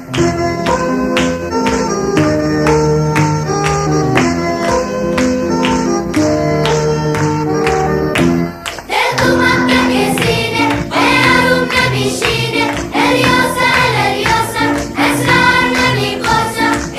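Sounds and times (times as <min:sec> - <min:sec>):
background music with choir singing: 0:08.4 - 0:16.9.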